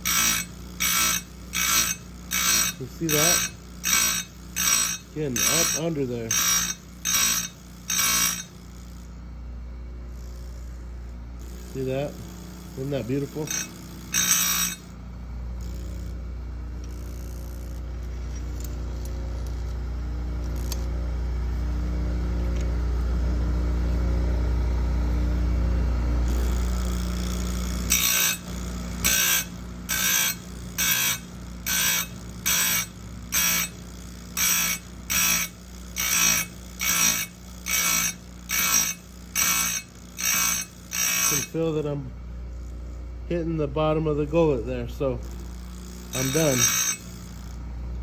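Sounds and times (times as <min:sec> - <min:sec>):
grinding wheel on metal: 0:00.0 - 0:09.2, 0:10.1 - 0:15.0, 0:26.2 - 0:48.0
grinder motor humming: 0:00.0 - 0:48.0.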